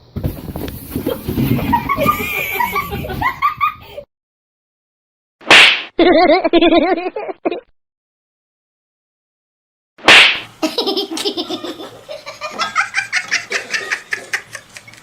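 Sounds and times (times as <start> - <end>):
person laughing hard: 1.7 - 4.0, 6.0 - 7.6, 10.6 - 14.9.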